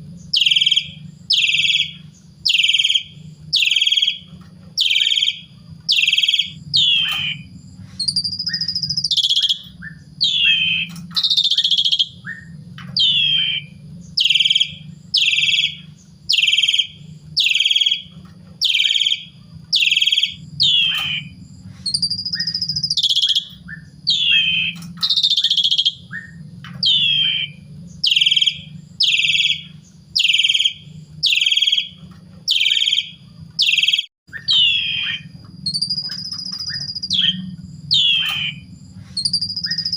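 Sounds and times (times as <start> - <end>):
starling harsh calls and whistles: 0.0 - 39.9
steady low hum: 0.0 - 39.9.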